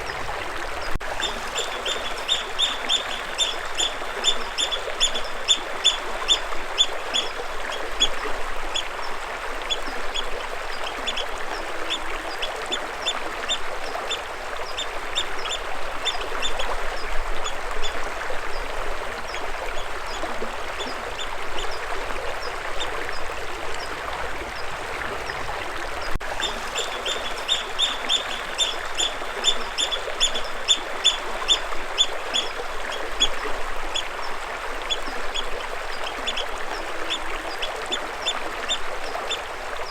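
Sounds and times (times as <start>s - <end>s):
flowing water: 0.0s - 39.9s
bird chirping: 1.2s - 6.0s, 26.4s - 31.2s.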